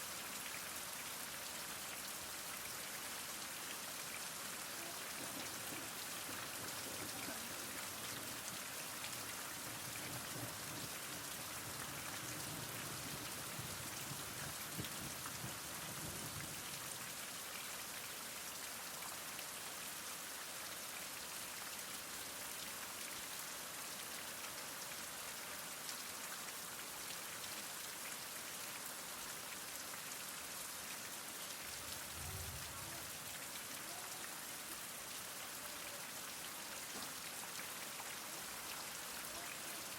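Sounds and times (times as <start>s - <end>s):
heavy rain falling: 1.7s - 17.5s, 29.6s - 39.9s.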